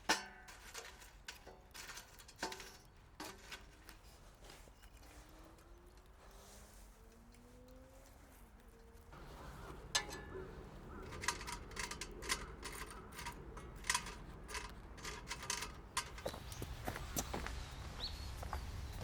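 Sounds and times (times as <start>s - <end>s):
low steady background noise: 0.0s - 19.0s
sharp irregular clicks and knocks: 7.1s - 16.7s.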